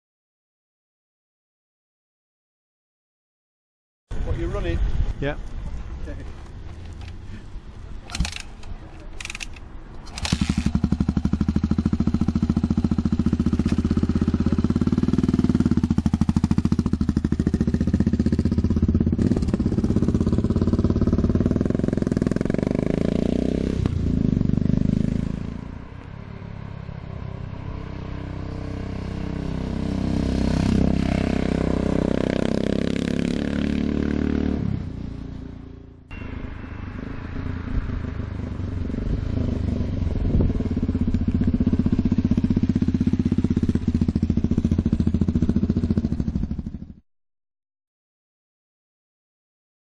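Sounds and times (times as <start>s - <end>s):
motorcycle engine running: 10.1s - 26.6s, 35.7s - 47.0s.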